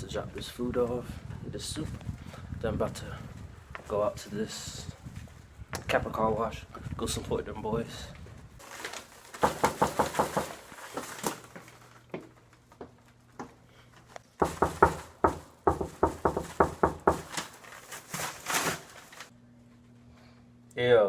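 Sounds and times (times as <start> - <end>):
rapid knocking on a door: 9.4 - 10.6, 14.4 - 17.4.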